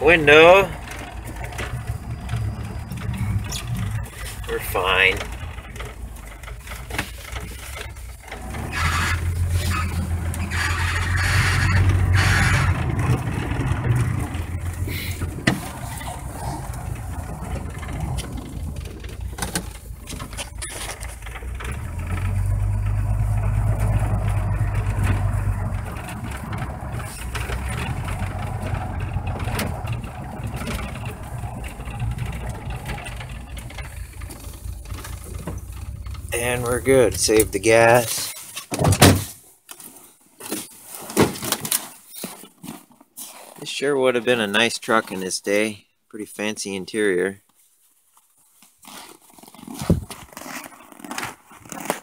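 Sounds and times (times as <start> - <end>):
pickup truck engine running: 0.0 - 38.3.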